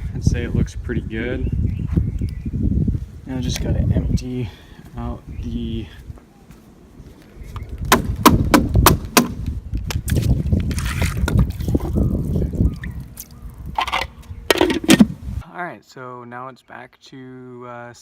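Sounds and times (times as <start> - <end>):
water pouring and splashing: 10.1 - 14.0.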